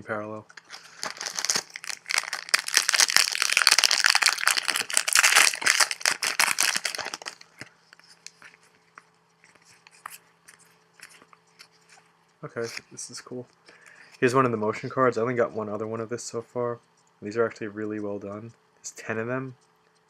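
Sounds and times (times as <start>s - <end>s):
wrapper tearing and crinkling: 0.6s - 7.6s.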